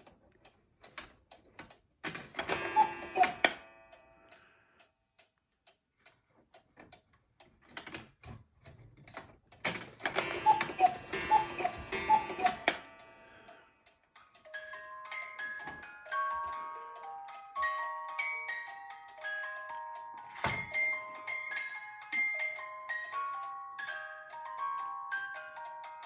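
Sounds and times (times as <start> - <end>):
clock ticking: 0.0 - 26.0
clock works clattering: 2.0 - 4.4, 9.1 - 26.0
cuckoo call: 2.5 - 3.6, 10.2 - 13.4.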